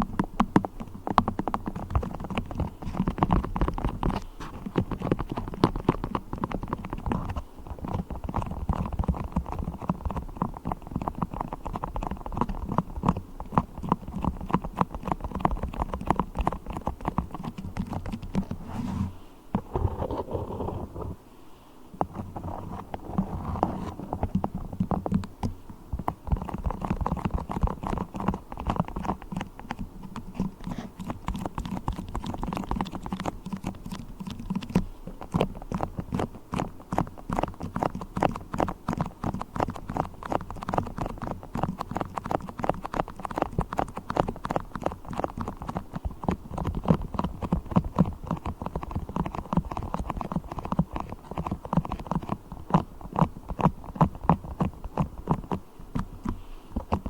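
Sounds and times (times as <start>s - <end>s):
beeswax crackling and tapping: 22.0s - 57.0s.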